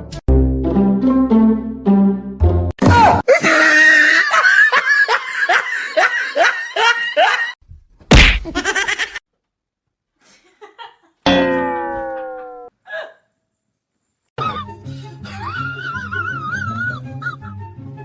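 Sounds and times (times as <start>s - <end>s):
person laughing hard: 3.3s - 7.6s, 8.4s - 9.2s, 15.3s - 17.6s
loud smack: 8.0s - 8.6s
falling tone: 11.3s - 12.7s.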